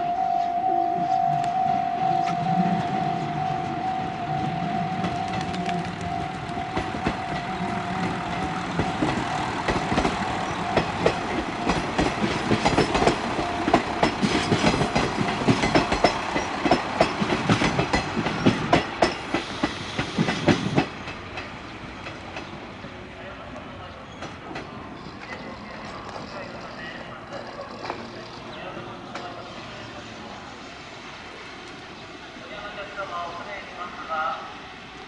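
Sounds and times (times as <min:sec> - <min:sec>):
train wheels clattering over rail joints: 0:05.1 - 0:22.6.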